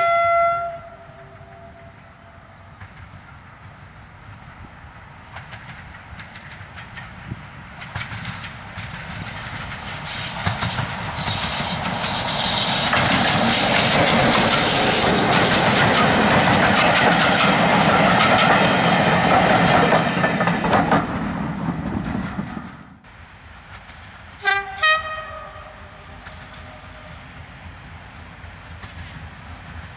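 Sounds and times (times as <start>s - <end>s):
locomotive horn blasts: 0.0s - 2.5s, 24.4s - 27.2s
diesel train passing: 0.0s - 29.9s
wheels clattering over rail joints: 5.3s - 23.0s.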